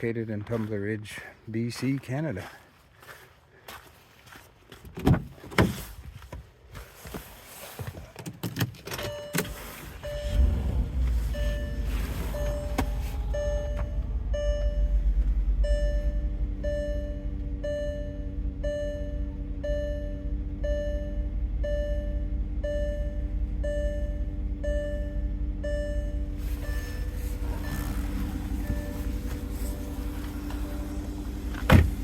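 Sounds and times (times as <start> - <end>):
car warning chime: 9.0 - 32.0
car engine idling: 9.5 - 32.0.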